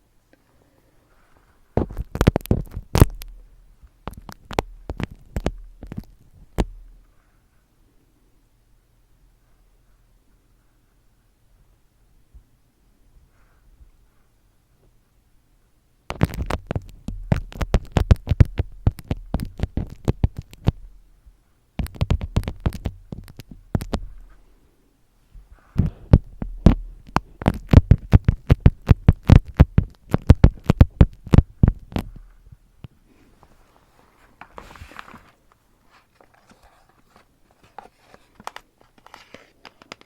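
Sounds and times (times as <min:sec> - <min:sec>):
rapid tapping with low thuds: 0:16.1 - 0:20.9, 0:21.8 - 0:24.2, 0:25.4 - 0:32.6.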